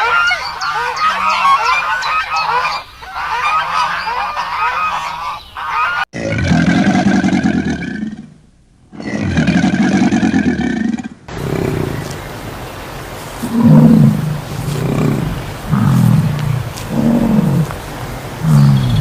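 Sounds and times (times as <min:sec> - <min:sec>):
long loud animal call: 0:09.0 - 0:19.0
short low animal calls: 0:11.3 - 0:19.0.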